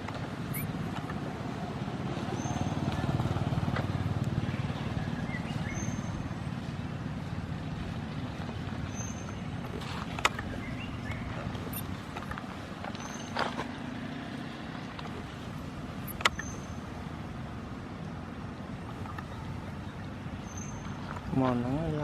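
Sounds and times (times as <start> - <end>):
sharp click: 16.1 - 16.6.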